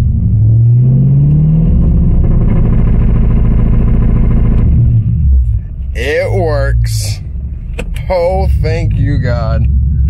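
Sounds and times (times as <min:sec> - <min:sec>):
car engine revving high: 0:00.0 - 0:05.4.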